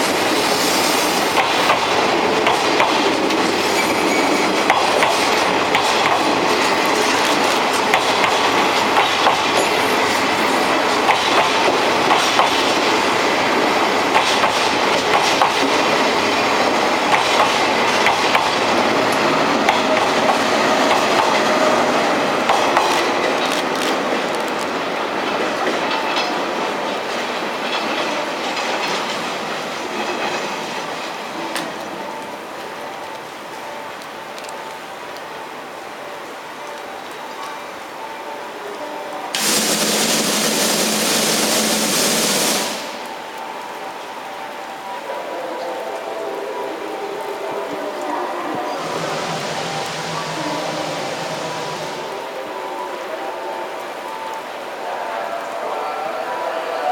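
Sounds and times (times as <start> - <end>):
train wheels clicking over rail joints: 0.0 - 32.0, 39.4 - 43.2.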